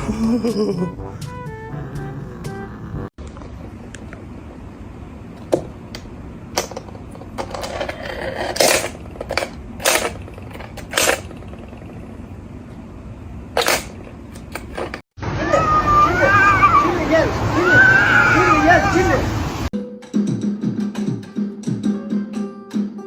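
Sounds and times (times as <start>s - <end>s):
clattering knocks and scrapes: 6.7s - 12.0s.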